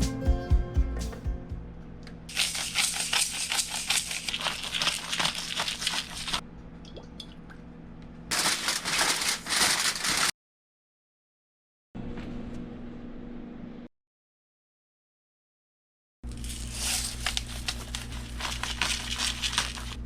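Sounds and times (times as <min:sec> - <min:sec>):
food crackling and sizzling over fire: 0:02.3 - 0:06.4, 0:16.3 - 0:20.0.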